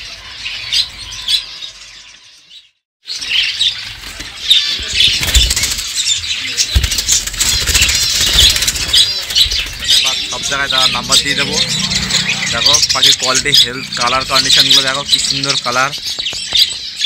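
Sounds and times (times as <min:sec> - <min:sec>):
caged birds chirping: 0:00.0 - 0:17.0
fast clicks: 0:05.0 - 0:10.5.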